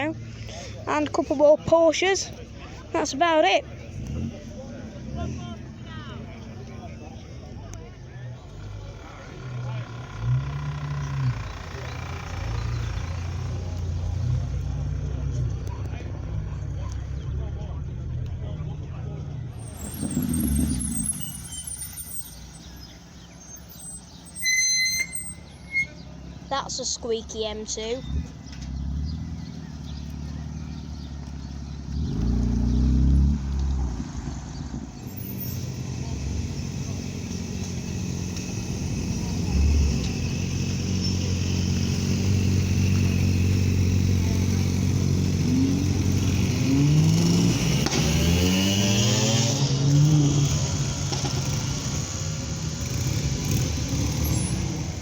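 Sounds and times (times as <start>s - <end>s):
car engine rumble: 0.0s - 55.0s
high-pitched car squeal: 19.6s - 22.7s, 23.4s - 26.2s.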